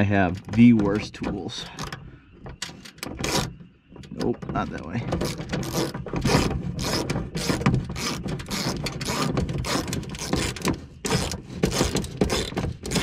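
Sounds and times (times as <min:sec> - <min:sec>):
hand ratchet clicking: 0:05.2 - 0:13.0.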